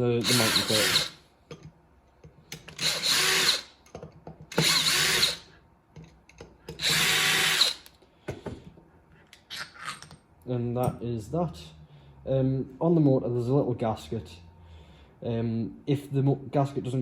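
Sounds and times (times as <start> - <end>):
power screwdriver whirring: 0.2 - 1.2, 2.8 - 3.7, 4.5 - 5.5, 6.8 - 7.9.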